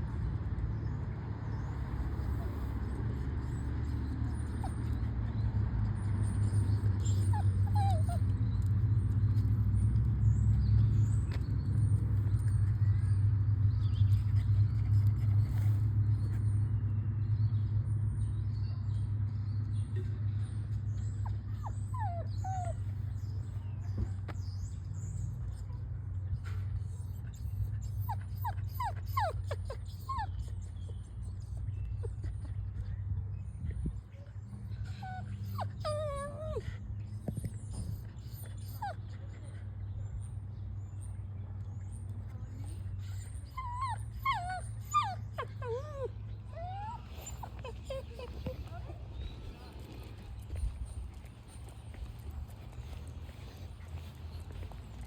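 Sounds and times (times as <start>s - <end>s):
small birds chirping: 18.2s - 55.0s.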